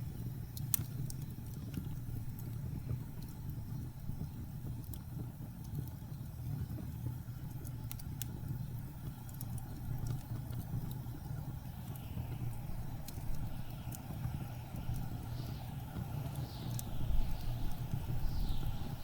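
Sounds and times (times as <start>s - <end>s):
wood crackling in fireplace: 0.0s - 19.0s
blizzard wind rumbling: 11.4s - 19.0s.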